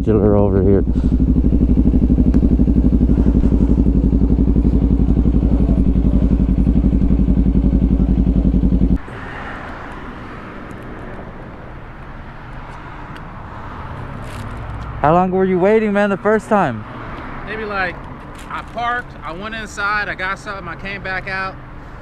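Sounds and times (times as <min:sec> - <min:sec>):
motorcycle engine idling: 0:00.4 - 0:09.0.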